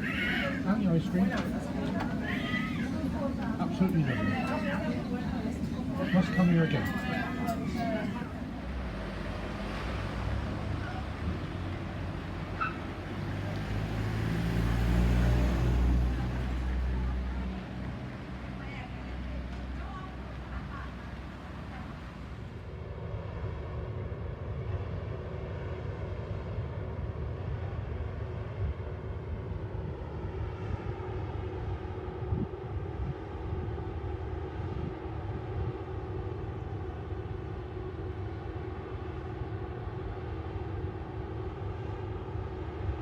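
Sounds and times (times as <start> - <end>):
machinery drone: 0.0 - 12.6.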